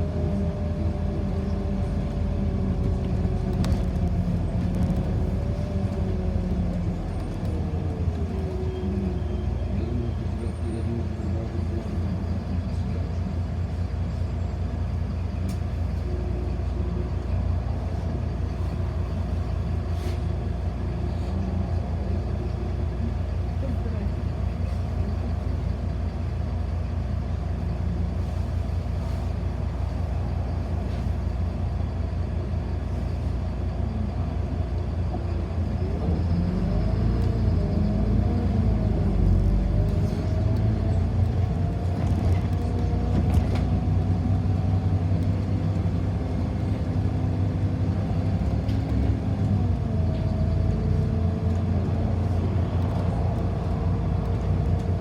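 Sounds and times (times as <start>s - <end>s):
bus engine rumbling: 0.0s - 55.0s.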